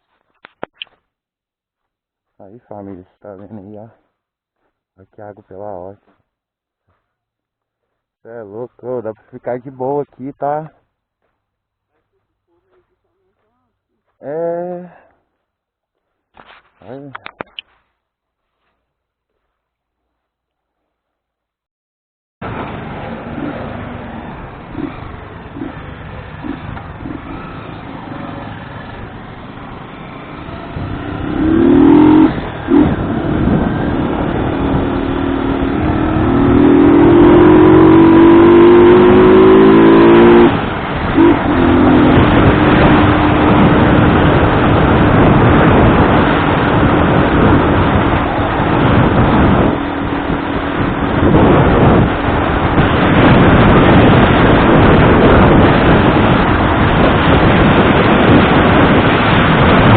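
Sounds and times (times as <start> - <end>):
road noise: 0.0 - 20.4, 22.4 - 59.9
vehicle engine accelerating: 22.4 - 59.9
wind noise: 28.8 - 59.9.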